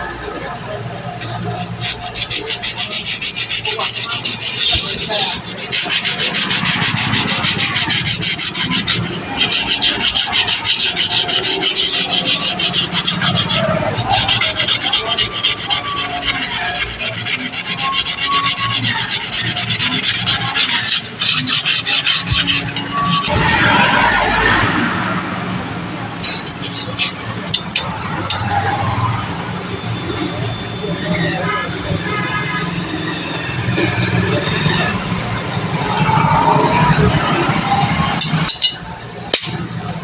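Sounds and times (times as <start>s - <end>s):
abrasive scraping knife blade: 1.2s - 24.8s, 26.2s - 29.0s, 35.8s - 39.9s.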